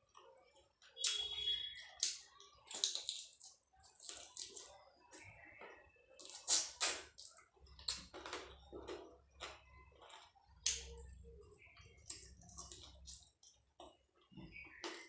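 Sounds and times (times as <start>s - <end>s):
wet chewing and lip-smacking: 0.1s - 5.2s, 11.8s - 15.0s.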